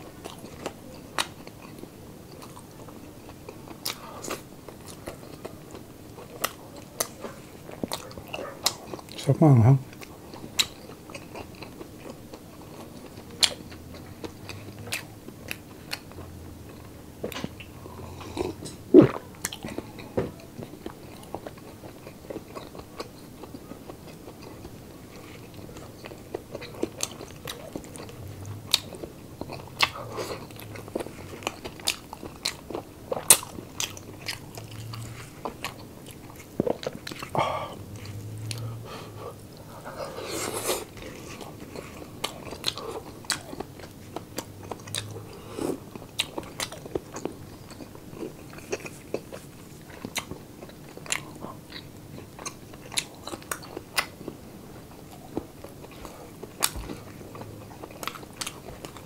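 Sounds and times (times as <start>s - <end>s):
person chewing crunchy food: 0.0s - 9.2s, 9.8s - 59.0s.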